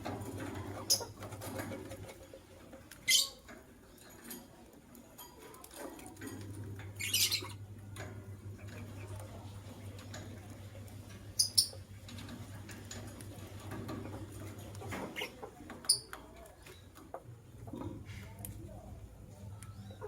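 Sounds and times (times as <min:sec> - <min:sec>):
lovebirds chirping: 0:07.0 - 0:07.7, 0:11.3 - 0:11.8.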